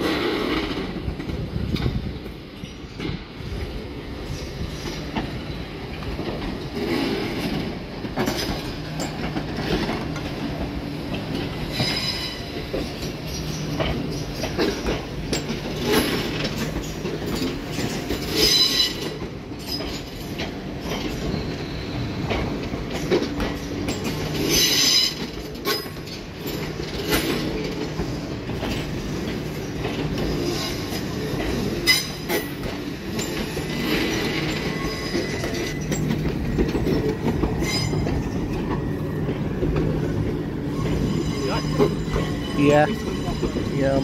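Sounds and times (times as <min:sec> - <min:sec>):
train wheels rumbling and clicking: 0:00.0 - 0:44.0
wheels squealing: 0:28.7 - 0:44.0.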